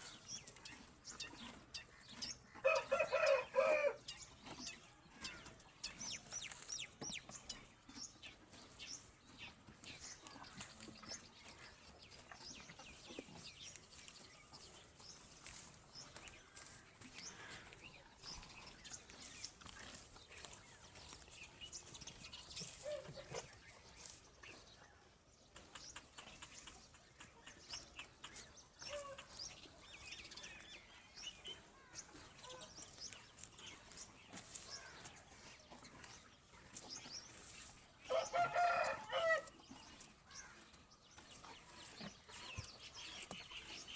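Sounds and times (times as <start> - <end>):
faint animal calls and clicks: 0.0 - 43.9.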